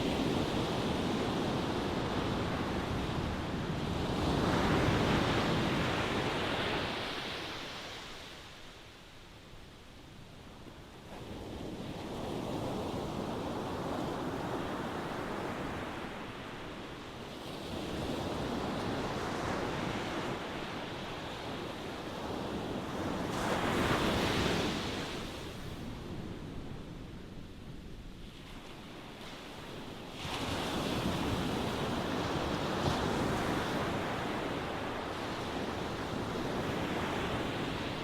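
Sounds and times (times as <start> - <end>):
ocean waves breaking on shore: 0.0 - 9.3, 27.9 - 38.0.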